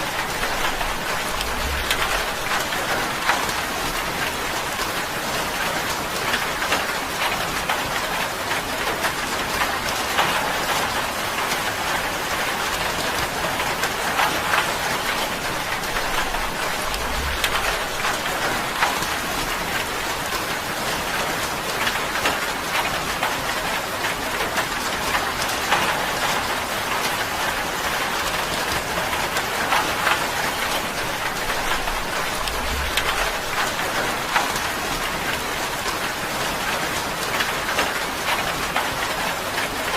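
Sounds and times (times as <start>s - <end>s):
rain drumming on a tin roof: 0.0s - 39.9s.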